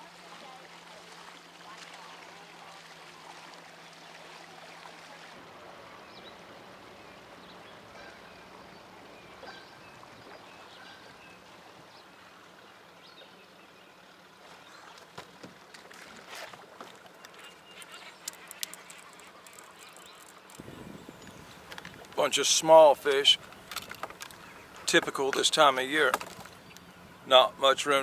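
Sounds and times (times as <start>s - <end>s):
water lapping against boat hull: 5.4s - 11.4s, 20.6s - 28.0s.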